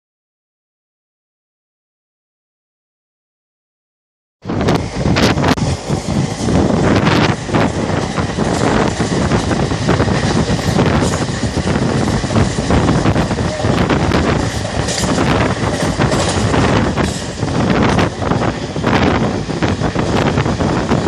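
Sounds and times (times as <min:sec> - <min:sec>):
train wheels on rails: 0:04.4 - 0:21.0
wind buffeting microphone: 0:04.4 - 0:21.0.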